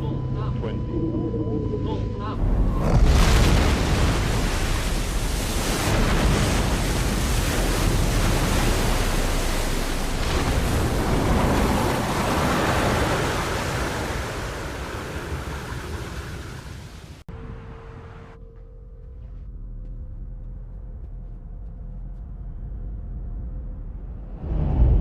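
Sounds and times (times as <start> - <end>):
rush of water and spray: 2.9 - 17.3.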